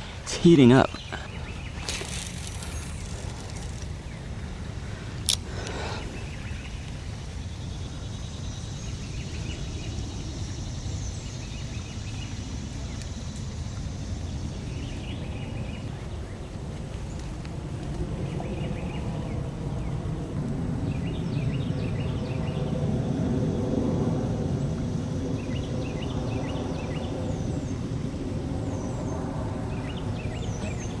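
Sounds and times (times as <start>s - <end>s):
small birds chirping: 0.0s - 10.2s
low wind rumble: 0.0s - 31.0s.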